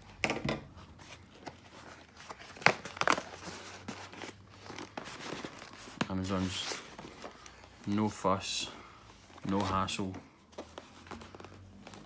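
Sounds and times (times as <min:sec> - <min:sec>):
package packaging crinkling: 0:01.1 - 0:08.5.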